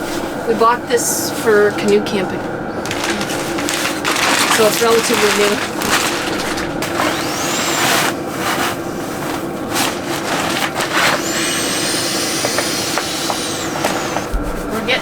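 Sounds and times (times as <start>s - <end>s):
diesel air heater humming: 0.0s - 15.0s
fabric and gear rustling: 2.7s - 11.6s.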